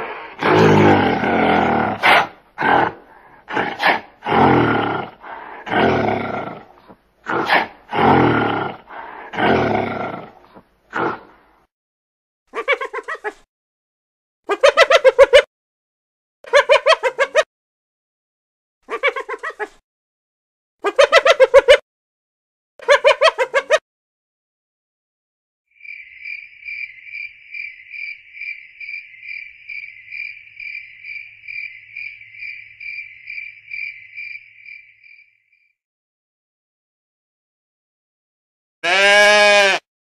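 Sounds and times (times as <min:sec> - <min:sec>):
gorilla calling: 0:12.5 - 0:13.4, 0:18.9 - 0:19.8
hyenas giggling: 0:12.5 - 0:13.4, 0:14.5 - 0:15.5, 0:16.5 - 0:17.5, 0:20.8 - 0:21.8, 0:22.8 - 0:23.8.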